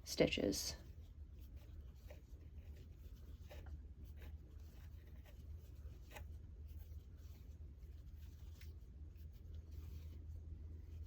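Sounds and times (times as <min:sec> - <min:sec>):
low steady hum: 0:00.0 - 0:11.0
crochet hook scratching yarn: 0:00.8 - 0:11.0.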